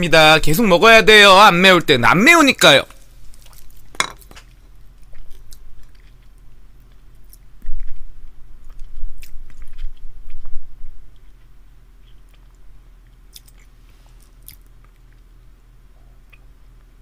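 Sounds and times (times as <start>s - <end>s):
crunchy chewing and biting: 3.3s - 15.4s.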